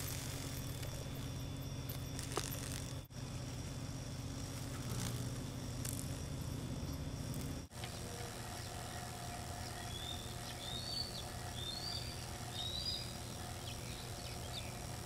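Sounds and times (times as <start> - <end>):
steady low hum: 0.0 - 15.0
bird chirping: 7.8 - 15.0.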